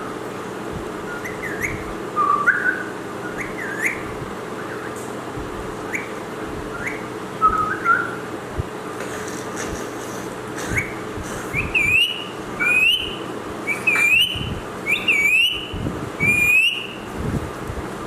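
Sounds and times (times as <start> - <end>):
parrot whistling: 1.1 - 5.0, 5.9 - 8.2, 10.7 - 17.0.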